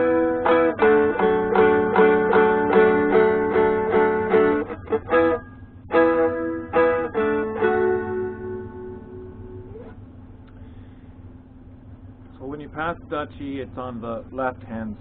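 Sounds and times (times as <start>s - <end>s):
dulcimer strummed: 0.0s - 9.9s.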